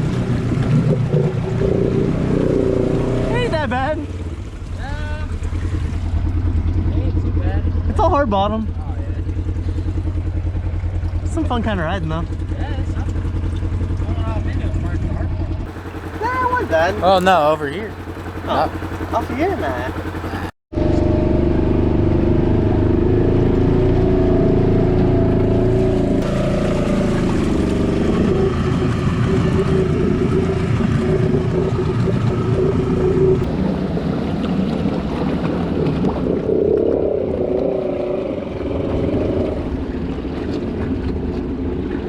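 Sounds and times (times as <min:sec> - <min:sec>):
engine running under load: 0:09.2 - 0:42.0.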